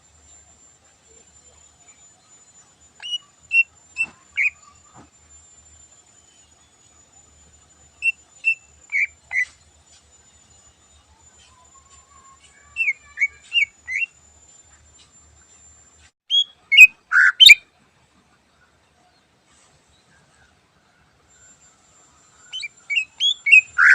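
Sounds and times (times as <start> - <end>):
bird whistling sharp notes: 3.0 - 4.8, 11.8 - 14.1, 16.3 - 17.6, 22.4 - 23.9.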